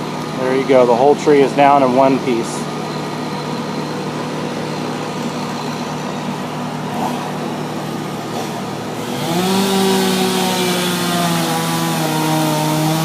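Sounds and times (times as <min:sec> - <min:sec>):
small engine revving: 0:08.2 - 0:13.0.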